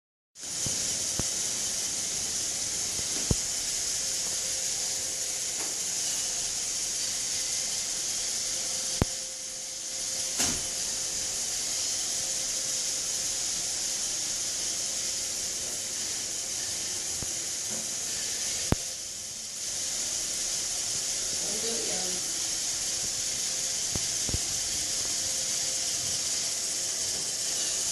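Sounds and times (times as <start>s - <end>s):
robot vacuum whirring: 19.7s - 27.9s.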